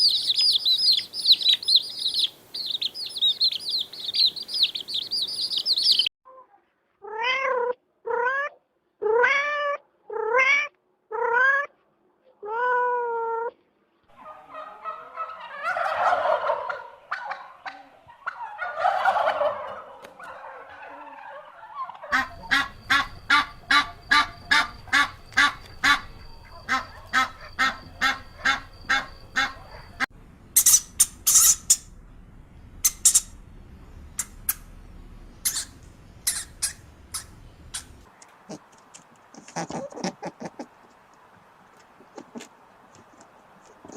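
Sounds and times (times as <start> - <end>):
rough animal calls: 12.6 - 31.9, 35.4 - 40.8
sharp high squeaks: 22.2 - 31.9, 35.4 - 38.0
fast clicking animal calls: 32.8 - 33.3, 35.4 - 41.0.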